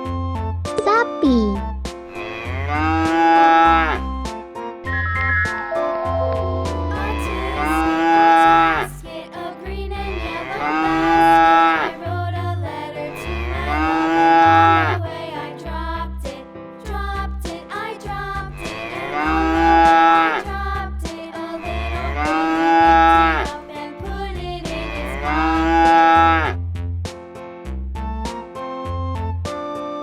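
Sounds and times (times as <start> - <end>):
children's music with bass line: 0.0 - 30.0
cow mooing: 2.1 - 4.0, 6.9 - 8.9, 10.1 - 12.0, 13.2 - 15.0, 18.6 - 20.4, 21.7 - 23.5, 24.9 - 26.6.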